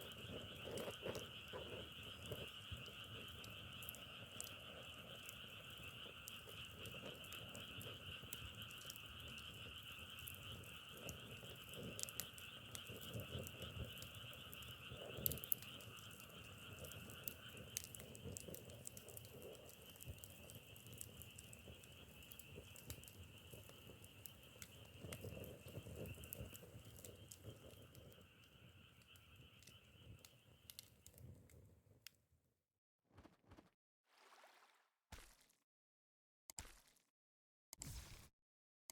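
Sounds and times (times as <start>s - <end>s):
frogs calling: 0.0s - 30.9s
wood fire crackling and popping: 0.0s - 31.6s.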